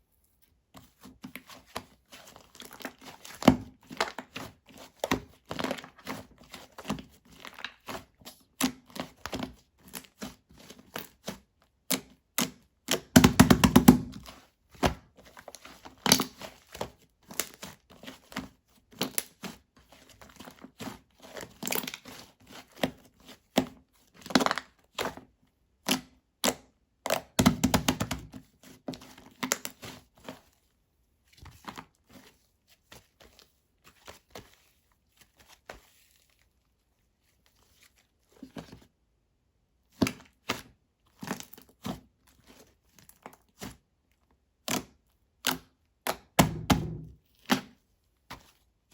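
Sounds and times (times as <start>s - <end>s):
slime squelching: 0.8s - 9.2s.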